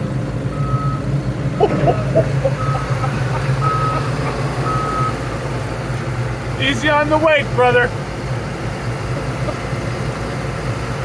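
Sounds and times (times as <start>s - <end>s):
large vehicle engine running: 0.0s - 11.0s
reversing beeper high beeps: 3.6s - 4.0s, 4.6s - 5.2s.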